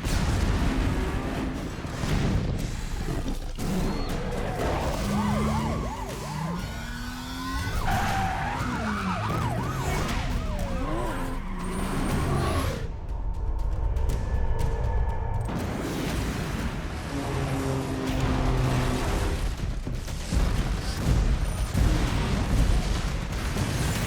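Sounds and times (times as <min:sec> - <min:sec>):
cars racing: 0:03.6 - 0:12.9, 0:15.5 - 0:19.6
police siren wailing: 0:03.7 - 0:13.3, 0:16.8 - 0:19.4
heavy low rumble: 0:12.0 - 0:20.0.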